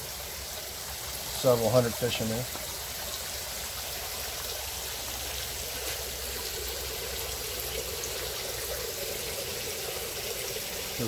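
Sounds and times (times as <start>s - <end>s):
water trickling into a vat: 0.0s - 11.0s.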